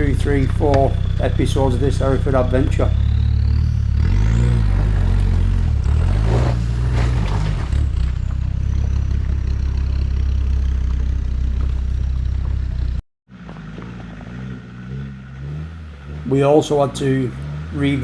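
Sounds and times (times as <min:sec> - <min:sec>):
engine running and revving: 0:00.0 - 0:18.0
clattering and scraping: 0:06.0 - 0:14.2.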